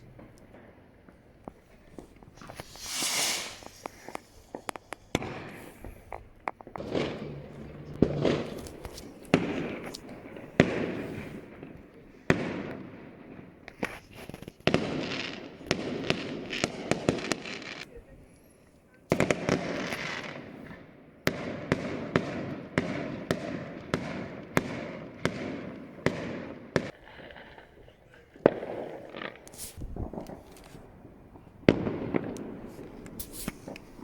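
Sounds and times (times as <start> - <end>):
firework bangs and crackling: 0.0 - 18.2, 19.0 - 34.0
firework rushing hiss: 2.0 - 6.1, 32.6 - 34.0.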